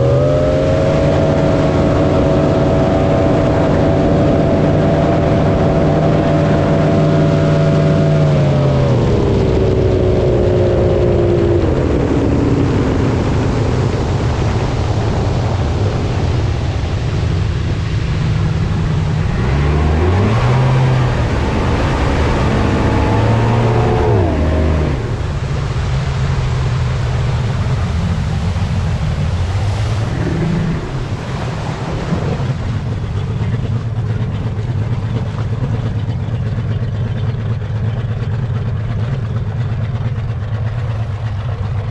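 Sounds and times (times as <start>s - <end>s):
engine revving: 0.0s - 14.2s, 18.2s - 25.5s, 29.5s - 37.3s
water rushing: 0.0s - 41.9s
wind: 0.0s - 41.9s.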